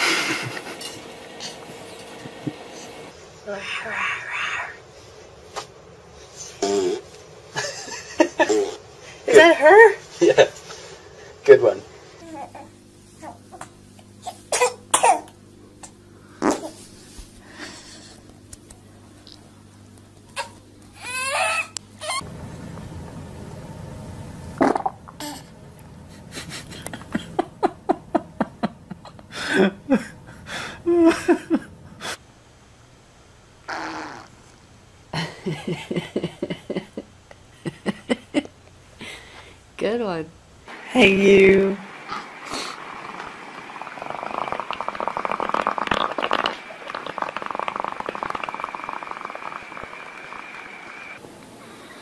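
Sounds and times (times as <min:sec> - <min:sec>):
people laughing: 0:00.0 - 0:01.0, 0:26.2 - 0:30.2, 0:35.2 - 0:38.5
baby's rattling fart: 0:24.6 - 0:25.0, 0:33.7 - 0:34.3, 0:42.1 - 0:49.9.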